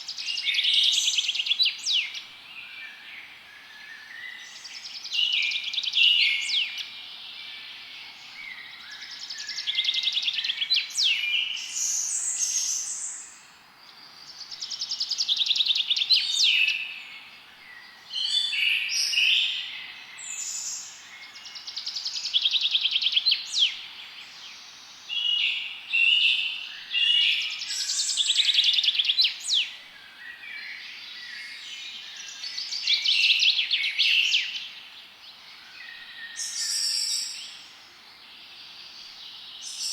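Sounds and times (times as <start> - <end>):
faint steady hiss: 0.0 - 39.9.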